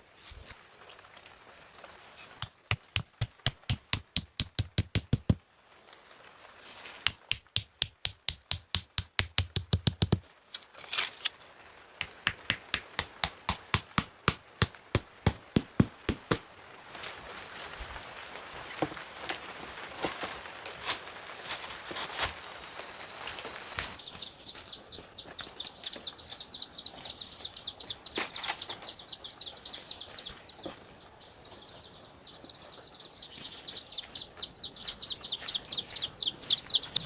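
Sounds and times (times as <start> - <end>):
rapid chopping strikes: 2.4 - 5.4, 7.1 - 10.2, 12.0 - 16.5.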